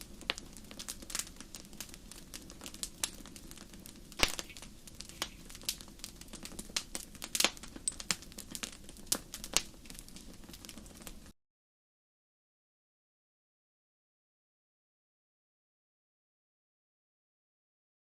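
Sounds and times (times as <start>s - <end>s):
wood fire crackling and popping: 0.0s - 11.4s.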